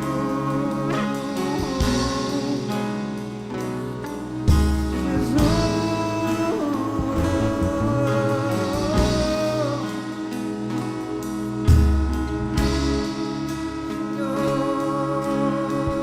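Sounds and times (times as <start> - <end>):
guitar: 0.0 - 16.0
slow worship music: 0.0 - 16.0
person singing long note: 5.0 - 10.7, 13.4 - 16.0.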